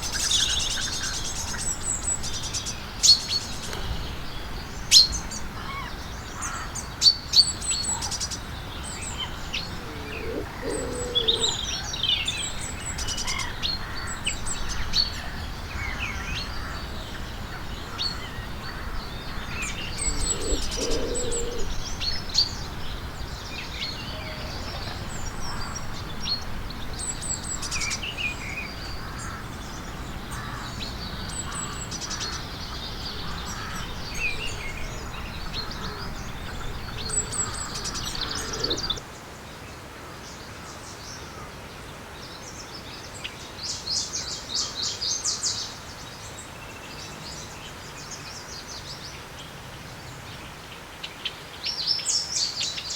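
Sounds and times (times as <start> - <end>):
small birds chirping: 0.0 - 39.2.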